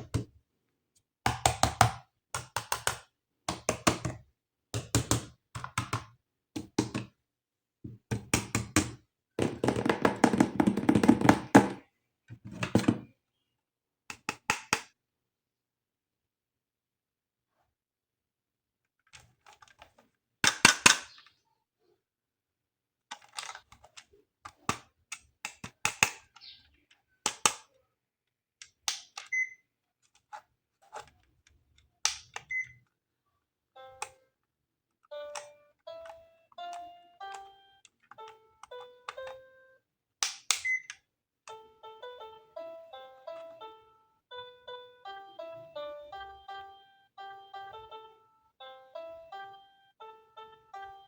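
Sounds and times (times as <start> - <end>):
plastic toy parts clicking: 19.0 - 21.3, 23.0 - 27.8, 28.6 - 32.9, 40.2 - 41.6
electronic toy tune: 35.1 - 39.8, 41.5 - 51.0.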